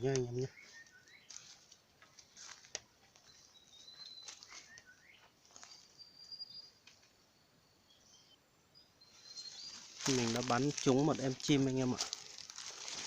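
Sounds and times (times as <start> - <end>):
birds chirping: 0.0 - 12.6.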